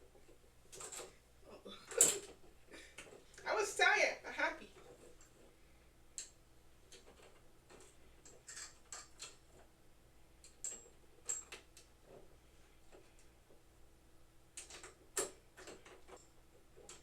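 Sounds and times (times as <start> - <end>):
light clicks and taps of small parts: 6.1 - 9.7, 14.5 - 17.0.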